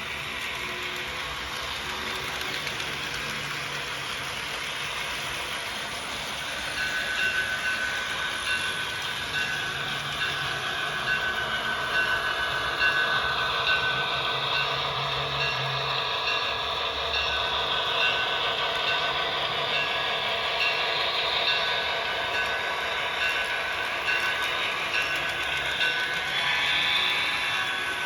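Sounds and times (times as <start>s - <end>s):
model train rolling on track: 0.0s - 28.0s.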